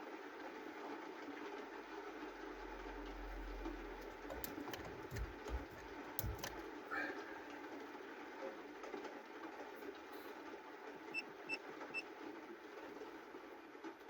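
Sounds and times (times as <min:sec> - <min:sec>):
sharp clicks: 0:04.0 - 0:06.6.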